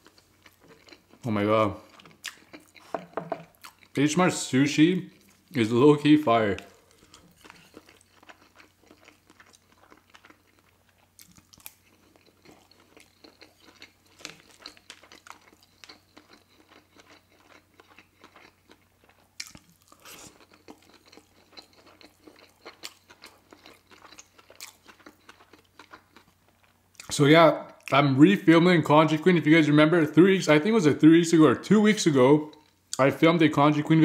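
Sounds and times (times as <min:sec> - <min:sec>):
chewing with wet mouth clicks: 0:00.0 - 0:04.0, 0:06.5 - 0:28.0.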